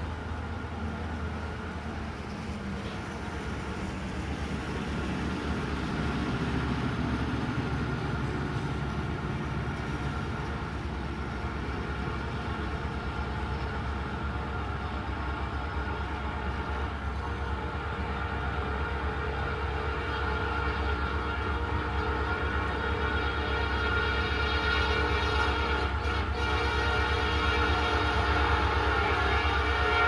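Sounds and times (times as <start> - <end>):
diesel freight train rumbling: 0.0 - 30.0.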